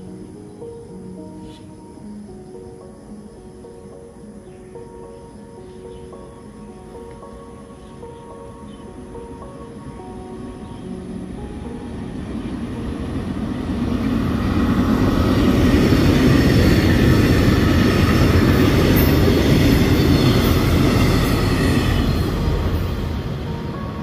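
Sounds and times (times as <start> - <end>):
passenger train passing on rails: 2.6 - 24.0.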